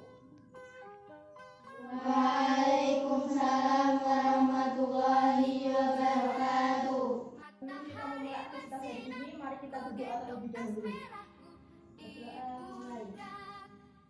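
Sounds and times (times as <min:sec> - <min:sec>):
group of voices chanting: 0:01.8 - 0:07.4.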